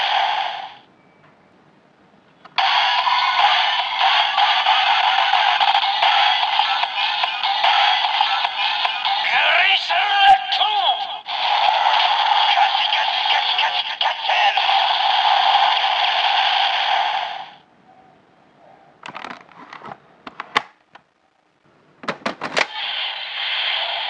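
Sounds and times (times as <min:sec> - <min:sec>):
toy rushing sound effect: 0:02.6 - 0:08.6, 0:11.3 - 0:17.6.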